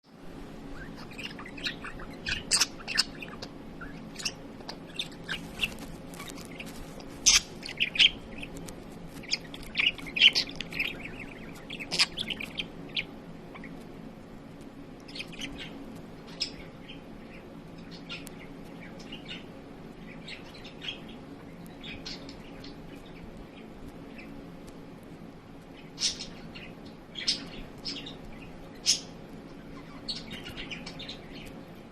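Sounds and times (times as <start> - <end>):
low background hum: 0.0 - 31.9
budgerigar chirping: 0.8 - 8.5, 9.2 - 13.8.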